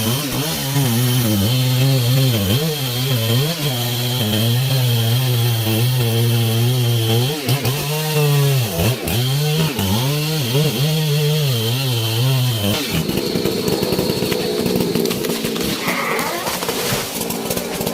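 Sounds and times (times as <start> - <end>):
chainsaw engine cutting: 0.0 - 17.9.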